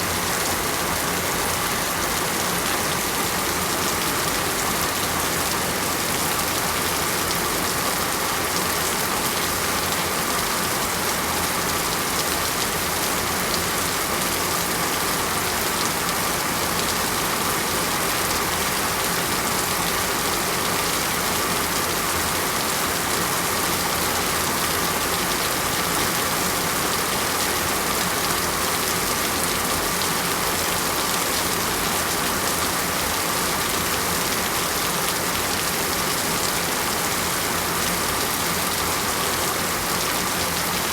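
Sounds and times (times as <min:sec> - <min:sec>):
heavy rain falling: 0:00.1 - 0:40.9.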